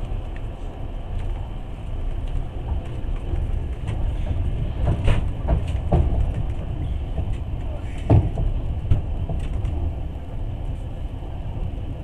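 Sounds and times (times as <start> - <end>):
train rumbling: 0.0 - 12.0
wheels knocking on track: 2.6 - 10.0.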